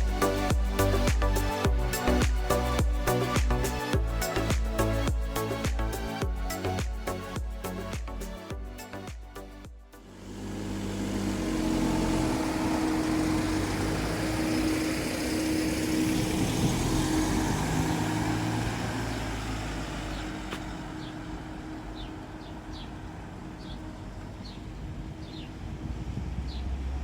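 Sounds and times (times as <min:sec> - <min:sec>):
vehicle passing: 0:10.1 - 0:27.0.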